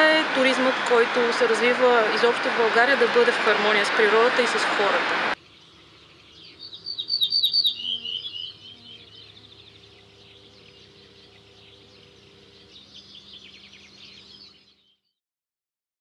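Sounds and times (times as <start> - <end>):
songbirds chirping and trilling: 5.4 - 15.1.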